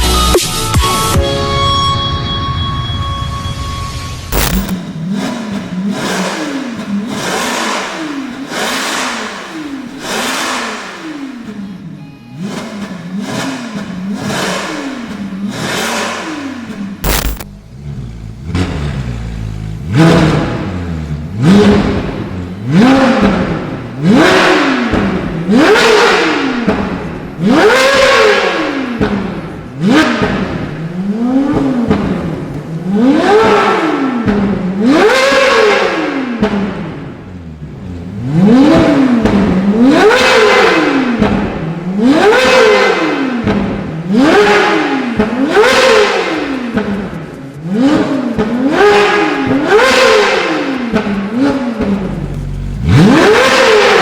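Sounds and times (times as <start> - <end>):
sharp click: 4.3 - 4.8, 17.0 - 17.5
car engine revving: 4.3 - 54.0.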